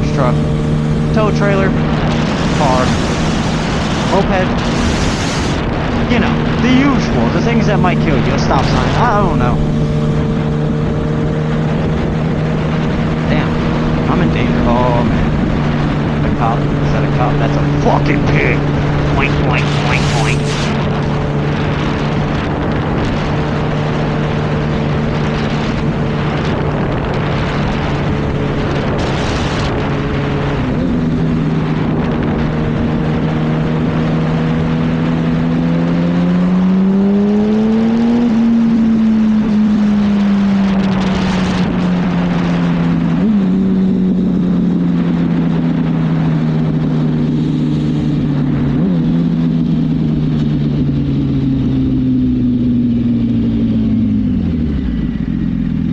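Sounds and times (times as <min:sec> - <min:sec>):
wind rushing: 0:00.0 - 0:16.8
motorcycle engine cruising and revving: 0:00.0 - 0:55.9.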